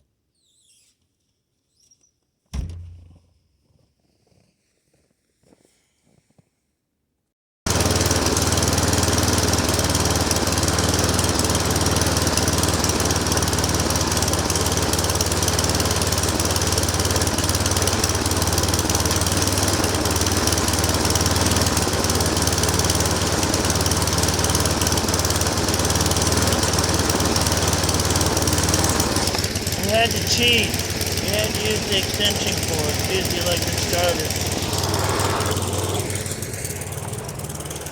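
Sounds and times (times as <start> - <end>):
snowblower engine running: 7.7 - 37.9.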